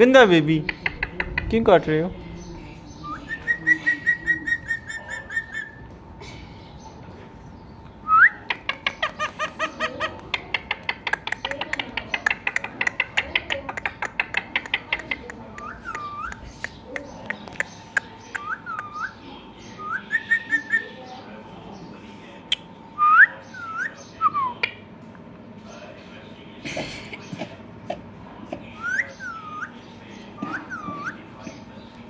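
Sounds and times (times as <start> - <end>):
parrot chirping: 3.0 - 5.9, 8.0 - 21.0, 28.7 - 31.6.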